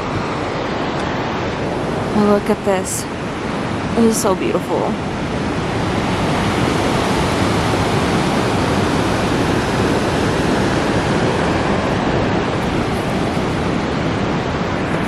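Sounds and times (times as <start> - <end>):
water rushing: 0.0 - 15.0.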